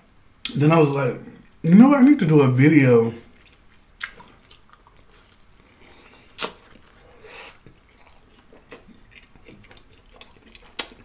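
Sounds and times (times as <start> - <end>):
wet chewing: 3.4 - 11.0
lip smack: 6.4 - 6.6.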